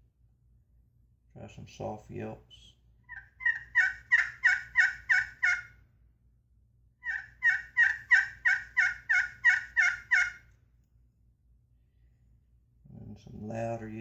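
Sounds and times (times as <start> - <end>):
turkey call yelps: 3.1 - 5.8, 7.0 - 10.5.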